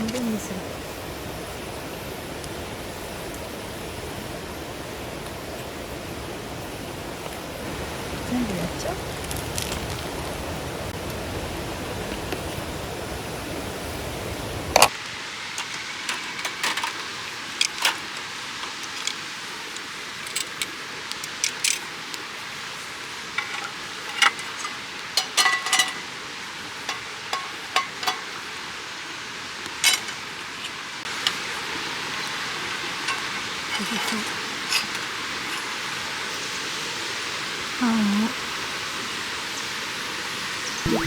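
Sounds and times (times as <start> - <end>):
frying pan sizzling: 0.0 - 37.8
utensils clinking on metal: 15.6 - 21.9, 23.4 - 26.2, 26.8 - 28.5, 29.8 - 30.2, 33.0 - 35.6.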